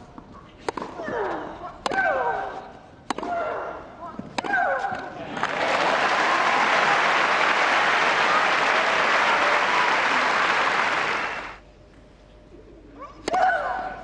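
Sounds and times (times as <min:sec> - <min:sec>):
crowd applauding: 0:05.3 - 0:11.6.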